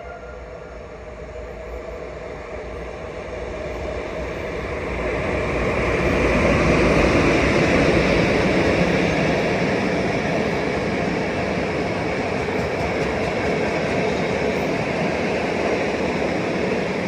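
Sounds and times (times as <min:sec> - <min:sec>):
train rolling on rails: 0:00.0 - 0:17.0.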